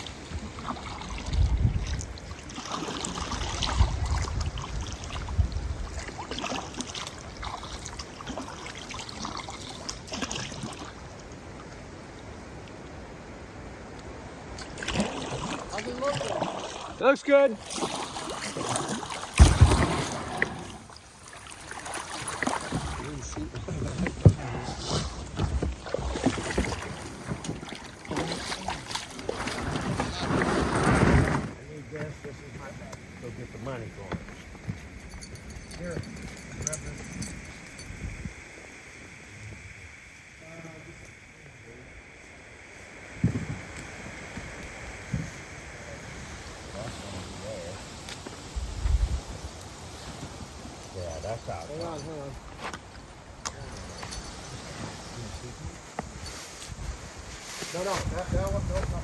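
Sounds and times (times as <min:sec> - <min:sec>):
wind noise on microphone: 0:00.0 - 0:02.4, 0:03.2 - 0:06.2, 0:29.3 - 0:31.6, 0:34.6 - 0:38.6, 0:43.2 - 0:52.2, 0:53.5 - 0:59.0
water trickling off paddle: 0:00.0 - 0:13.0, 0:13.9 - 0:31.6
paddle splashing in river: 0:00.0 - 0:32.3, 0:42.0 - 0:51.6
knocks and bumps on kayak: 0:19.3 - 0:20.6, 0:43.2 - 0:43.8.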